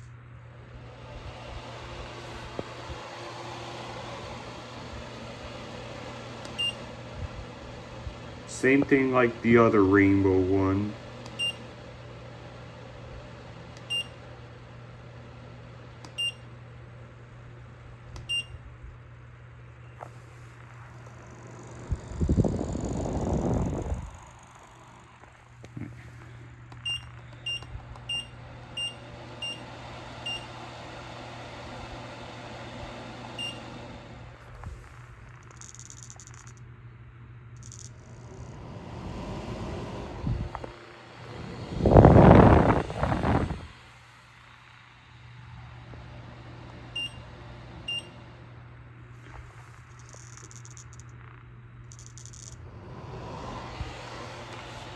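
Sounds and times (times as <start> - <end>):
exhaust fan humming: 0.0 - 54.9
high rattle: 49.2 - 52.7.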